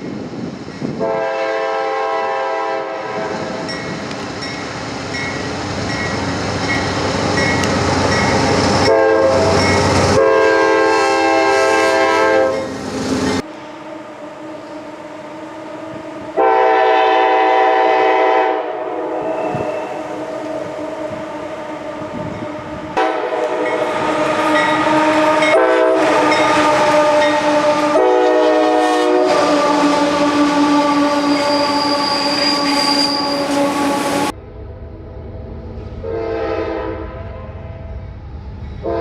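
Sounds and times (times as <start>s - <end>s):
passing train rumble: 0.0s - 39.0s
locomotive air horn blasts: 1.0s - 3.7s, 8.7s - 12.7s, 13.4s - 20.1s, 23.0s - 34.3s, 36.0s - 37.8s.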